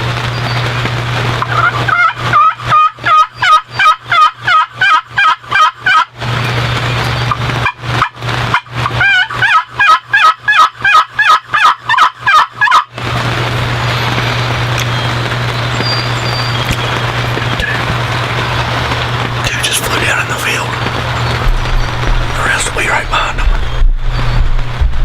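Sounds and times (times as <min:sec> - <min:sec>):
turkey yelping: 0:01.4 - 0:06.1, 0:07.6 - 0:12.9.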